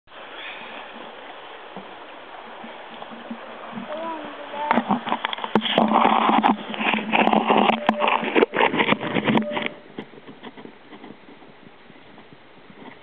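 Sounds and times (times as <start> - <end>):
water rushing and splashing: 0.1 - 11.0.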